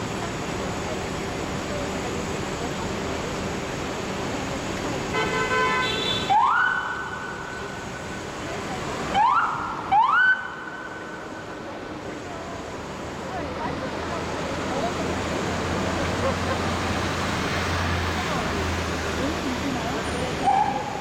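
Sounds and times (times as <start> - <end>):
street traffic noise: 0.0 - 21.0
fire truck horn blast: 5.1 - 6.5.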